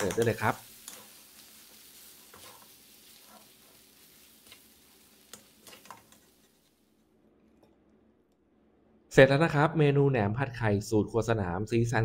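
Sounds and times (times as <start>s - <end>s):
metal spatula scraping a pan: 0.0s - 6.8s
faint stir-fry sizzle in a wok: 0.0s - 7.0s.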